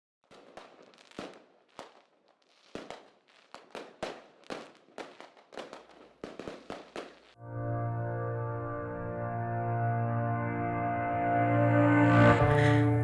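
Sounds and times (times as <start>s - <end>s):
fireworks bangs and cracks: 0.2s - 7.4s.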